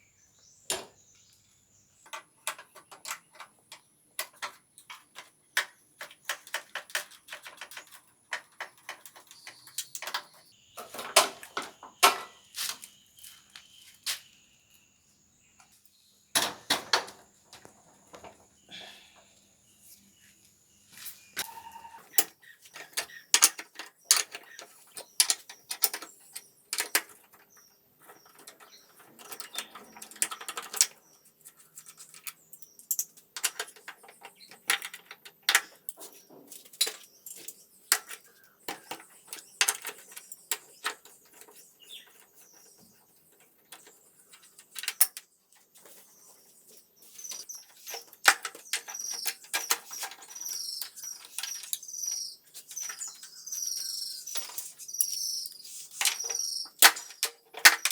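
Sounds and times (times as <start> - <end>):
hand tools clicking and tapping: 2.0 - 12.9, 21.4 - 46.0, 47.0 - 57.9.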